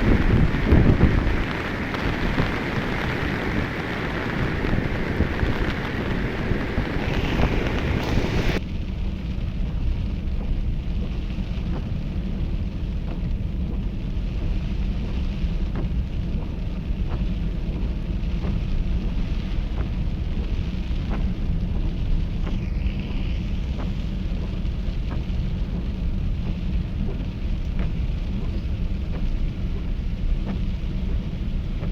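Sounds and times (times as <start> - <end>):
bright hiss: 0.0 - 8.6
river roaring: 0.0 - 8.6
wind buffeting microphone: 0.0 - 31.9.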